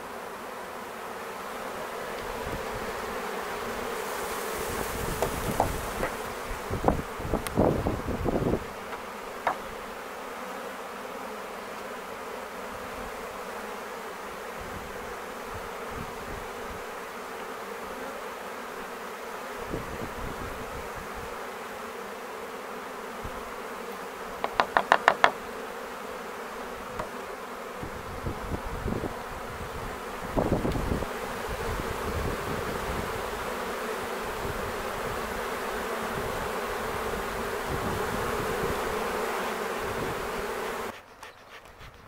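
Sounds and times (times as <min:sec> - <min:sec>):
bee swarm buzzing: 0:00.0 - 0:42.0
sharp taps: 0:24.4 - 0:25.4.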